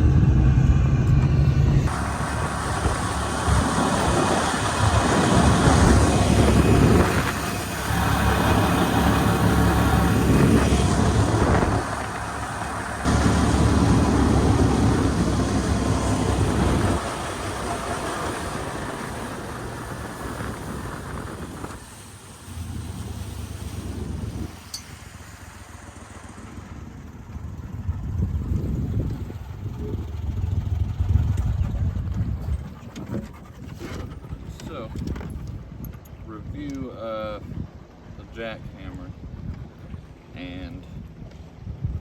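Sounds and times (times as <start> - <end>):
vehicle engine running: 0.0 - 32.7.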